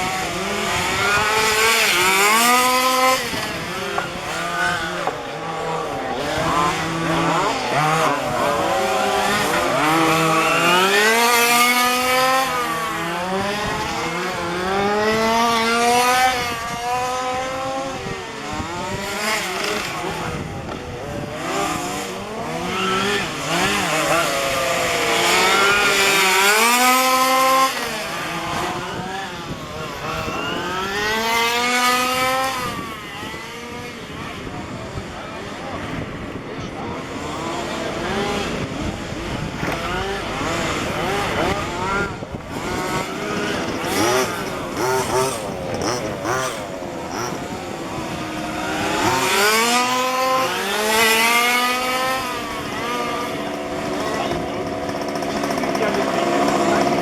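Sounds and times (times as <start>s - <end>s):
small two-stroke engines revving: 0.0s - 57.0s.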